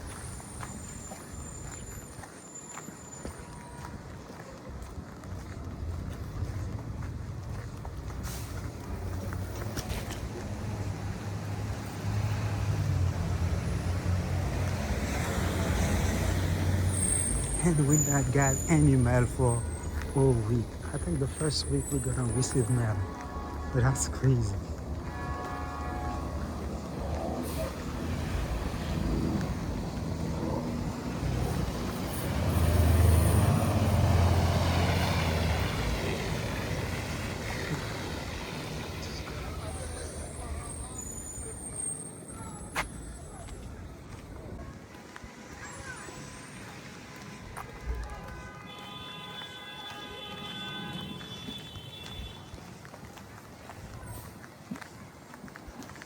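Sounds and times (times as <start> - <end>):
road noise: 0.0 - 56.0
vehicle engine droning: 10.2 - 44.2.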